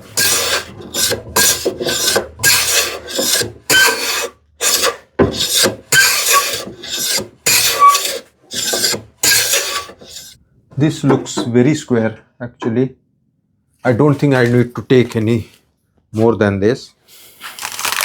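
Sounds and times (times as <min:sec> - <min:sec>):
hand plane rasping on wood: 0:00.0 - 0:10.4.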